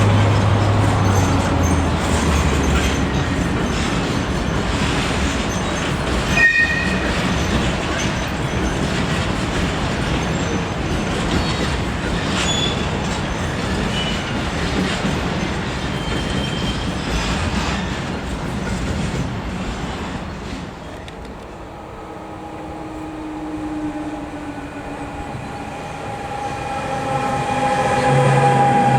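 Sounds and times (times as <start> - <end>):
train rumbling on rails: 0.0 - 28.9
high-pitched wheel squeal: 22.7 - 28.9.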